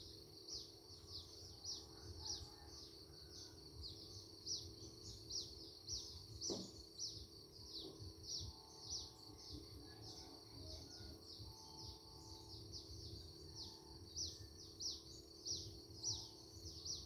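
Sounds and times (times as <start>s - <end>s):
outdoor background noise: 0.0s - 17.0s
soft knock: 6.4s - 6.8s.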